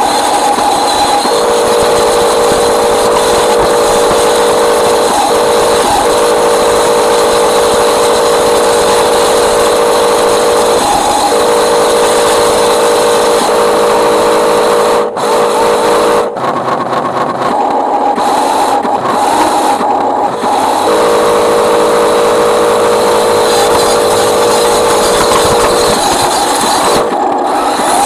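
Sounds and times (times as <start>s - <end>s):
electric motor and gearbox whining: 0.0s - 28.0s.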